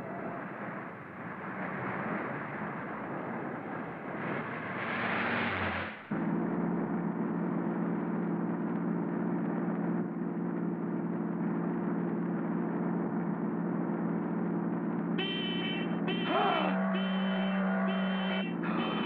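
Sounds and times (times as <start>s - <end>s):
cartoon car engine drone: 4.8s - 19.0s
high held tone: 15.2s - 19.0s.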